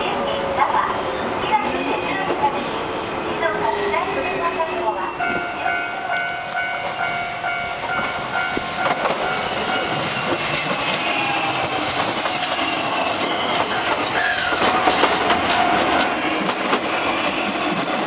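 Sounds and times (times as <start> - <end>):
level-crossing alarm ringing: 5.2 - 16.1
train whine falling in pitch: 5.2 - 16.1
train wheels clattering over rail joints: 7.8 - 18.0.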